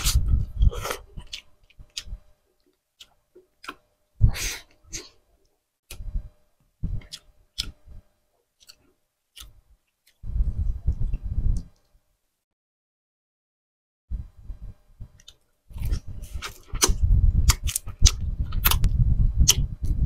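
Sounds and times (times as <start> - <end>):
chewing and wet mouth clicks: 7.0 - 7.8, 15.2 - 19.7.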